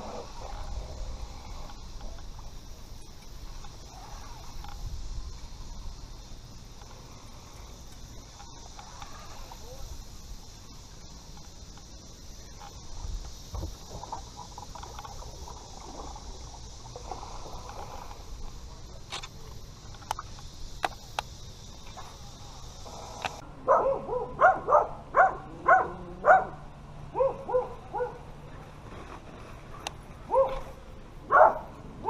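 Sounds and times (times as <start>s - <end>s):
steady high hiss: 0.0s - 32.0s
dog barking: 23.7s - 28.2s, 30.3s - 30.6s, 31.3s - 31.7s.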